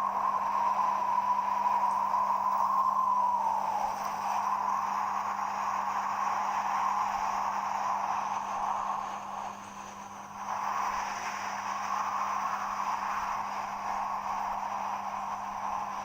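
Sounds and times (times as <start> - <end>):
strong wind blowing: 0.0 - 9.6.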